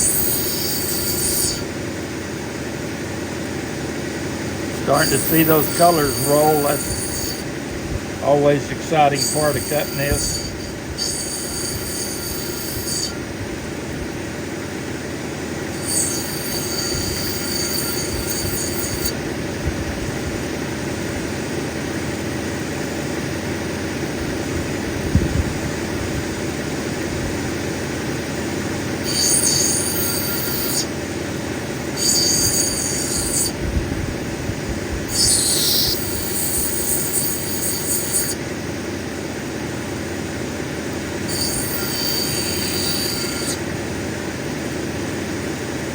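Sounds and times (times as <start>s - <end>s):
high-pitched whining: 0.0s - 1.7s, 4.7s - 7.6s, 8.2s - 13.4s, 15.7s - 19.3s, 29.0s - 30.9s, 31.9s - 33.6s, 35.1s - 38.4s, 41.3s - 43.6s
grinding machine running: 0.0s - 45.9s.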